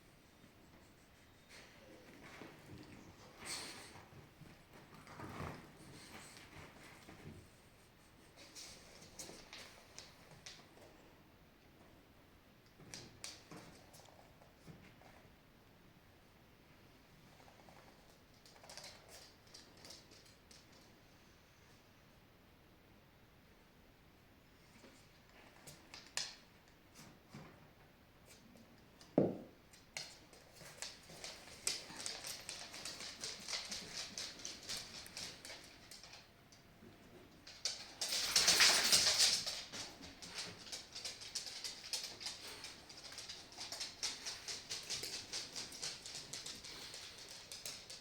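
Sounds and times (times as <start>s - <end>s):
dog clicking and pattering: 8.3s - 11.1s, 12.7s - 15.2s, 17.3s - 20.9s, 24.8s - 27.5s, 29.7s - 48.0s.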